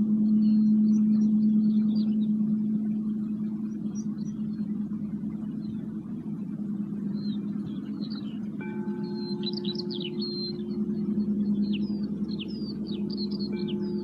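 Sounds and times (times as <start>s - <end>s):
birds chirping faintly: 0.0s - 14.0s
low gong ringing: 8.6s - 14.0s.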